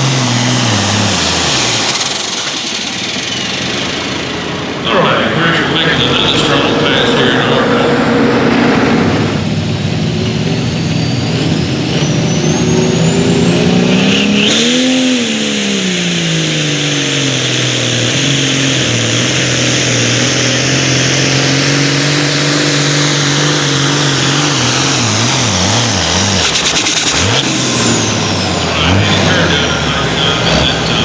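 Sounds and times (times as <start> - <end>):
engine running hard: 0.0 - 31.0
turbo whistle: 10.4 - 16.5, 19.6 - 31.0.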